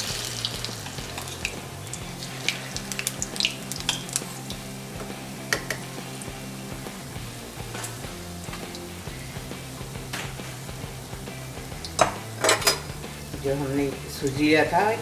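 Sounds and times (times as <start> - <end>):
oil crackling and popping: 0.0 - 13.0
batter sizzling in hot oil: 0.0 - 15.0.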